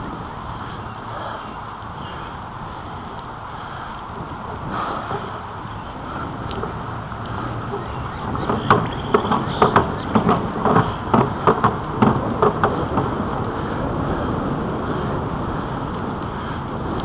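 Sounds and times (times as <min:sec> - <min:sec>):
wind and bicycle riding noise: 0:00.0 - 0:17.0
sharp clicks and knocks: 0:06.4 - 0:13.2.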